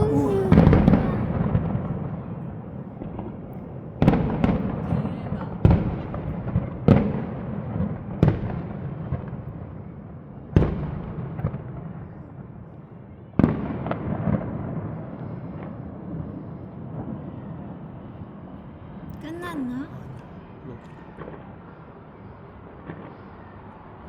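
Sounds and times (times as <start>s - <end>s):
fireworks pops and crackles: 4.0s - 9.6s.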